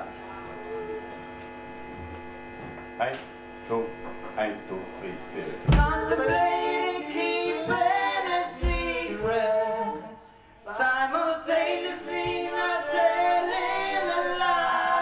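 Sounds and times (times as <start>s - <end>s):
voices singing in harmony: 5.6s - 15.0s
low drum thump: 5.7s - 6.2s, 8.6s - 9.1s.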